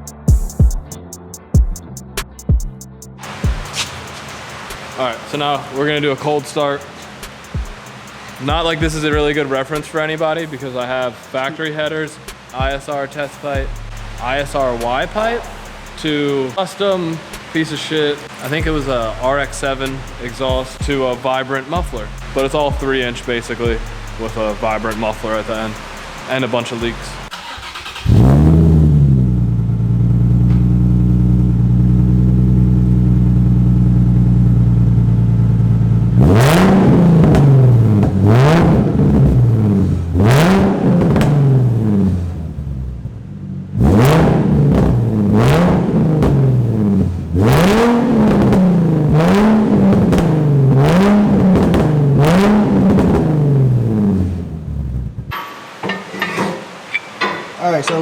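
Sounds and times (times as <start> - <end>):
car engine starting: 3.1 - 55.4
engine revving: 3.2 - 16.3, 16.9 - 55.3
car engine idling: 3.2 - 55.4.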